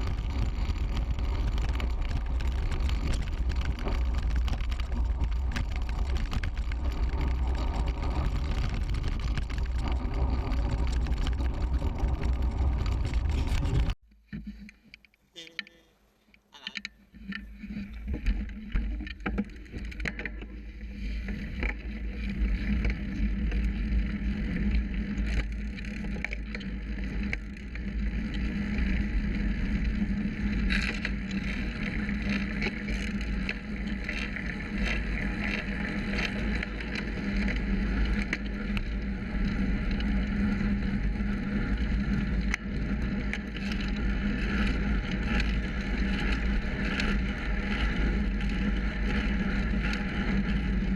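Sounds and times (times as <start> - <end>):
wind rumbling on microphone: 0.0 - 14.0, 17.1 - 50.9
bicycle tyre noise: 0.0 - 14.9, 17.1 - 50.9
small rattles: 0.0 - 23.7.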